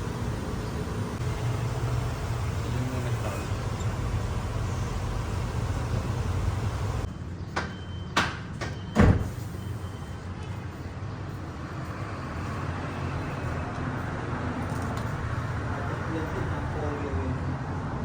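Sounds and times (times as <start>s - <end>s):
vehicle engine rumble: 0.0s - 7.5s.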